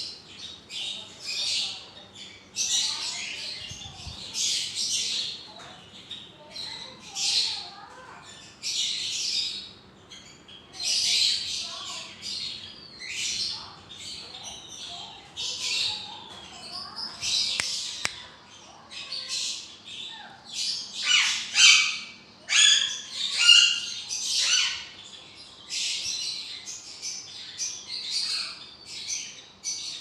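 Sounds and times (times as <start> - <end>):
parrots squawking: 21.0 - 24.9.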